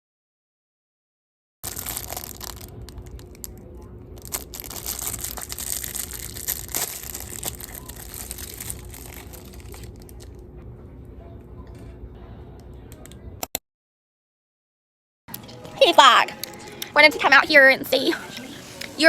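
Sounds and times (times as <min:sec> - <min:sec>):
packaging crinkling: 0:01.6 - 0:03.6, 0:04.2 - 0:10.4.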